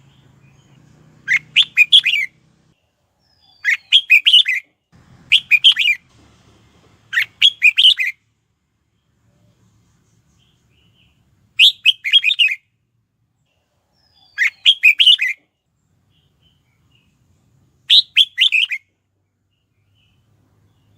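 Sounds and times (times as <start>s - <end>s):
bird singing chirping notes: 0.0s - 4.7s, 5.3s - 6.0s, 7.1s - 8.2s, 10.4s - 12.6s, 14.0s - 15.4s, 16.0s - 20.9s.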